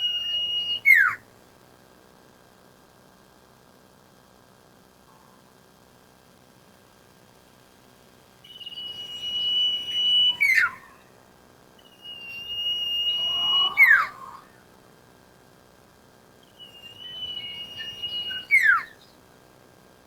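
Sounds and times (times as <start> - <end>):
bird whistling high notes: 0.0 - 1.1, 8.5 - 11.0, 11.8 - 14.4, 16.4 - 19.1.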